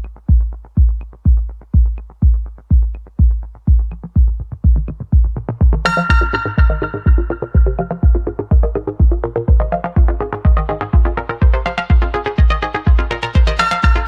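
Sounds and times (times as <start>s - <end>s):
heavy kick drum beat: 0.0s - 14.0s
sustained synthesizer chords: 5.7s - 14.0s.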